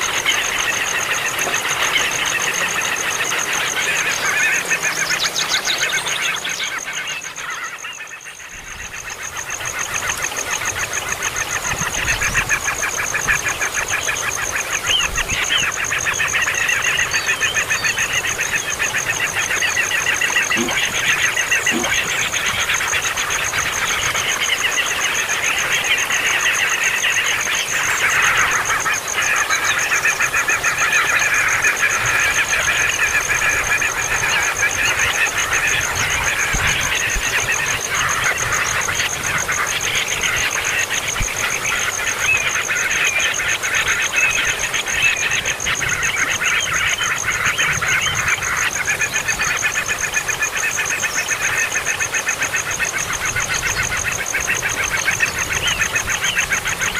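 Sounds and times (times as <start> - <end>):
baby birds begging calls: 10.8 - 24.4.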